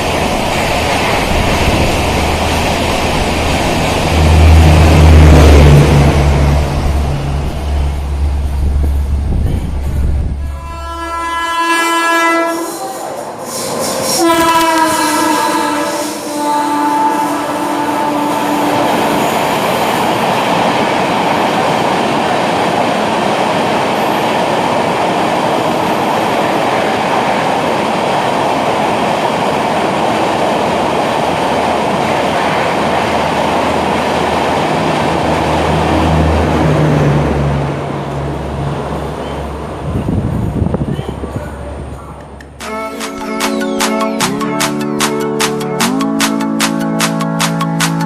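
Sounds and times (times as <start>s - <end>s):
train wheel and rail noise: 0.0s - 48.0s
train horn: 10.4s - 19.2s.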